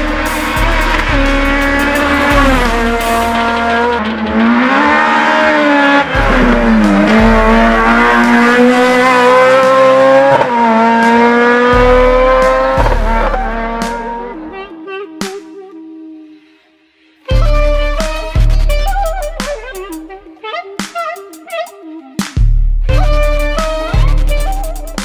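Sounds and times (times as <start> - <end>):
race car engine revving: 0.0 - 15.4.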